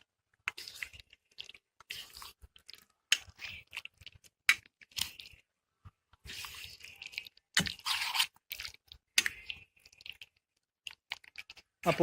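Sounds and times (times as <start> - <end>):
chicken squelching in marinade: 6.2 - 12.0.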